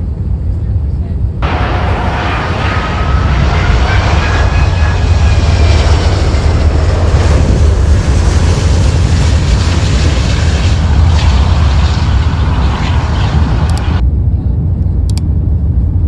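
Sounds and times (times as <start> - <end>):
jet engines roaring: 1.4 - 14.0
faint gliding whine: 1.4 - 15.0.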